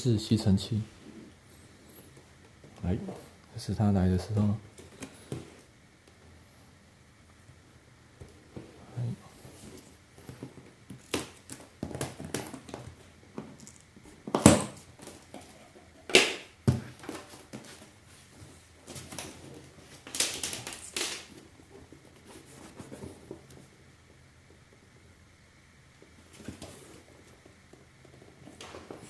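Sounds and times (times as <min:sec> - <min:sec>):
packaging rustling and crinkling: 0:16.9 - 0:23.6.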